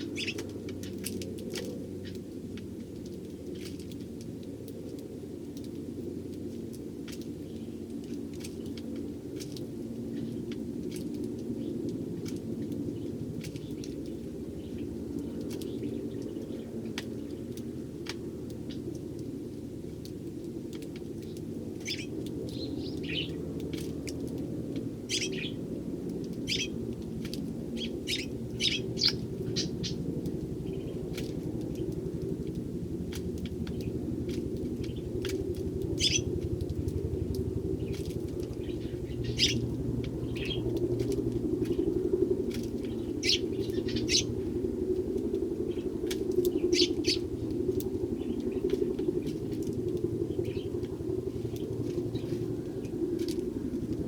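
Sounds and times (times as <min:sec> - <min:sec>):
sparrows chirping: 0:00.0 - 0:02.3, 0:07.1 - 0:08.8, 0:11.6 - 0:19.0, 0:21.2 - 0:24.4, 0:25.1 - 0:25.7, 0:26.3 - 0:44.7, 0:45.6 - 0:54.0
steady low hum: 0:00.0 - 0:54.0.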